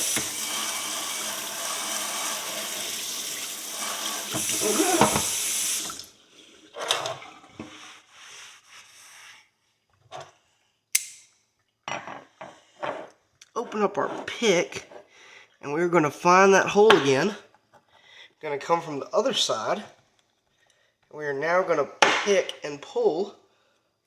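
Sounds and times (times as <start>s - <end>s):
tap water running: 0.0s - 7.8s
sharp click: 11.0s - 11.3s.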